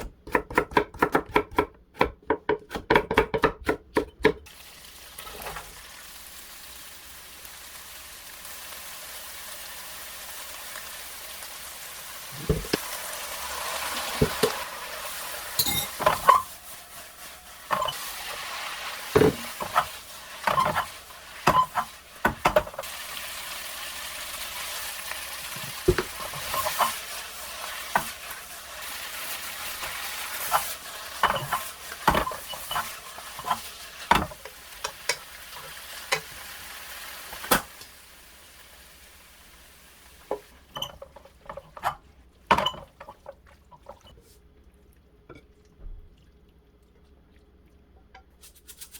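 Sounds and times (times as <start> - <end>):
stir-fry sizzling in pan: 4.5 - 41.8
utensil scraping and knocking pan: 15.6 - 16.6, 17.7 - 18.1, 19.1 - 22.8, 25.9 - 27.0, 29.8 - 34.4.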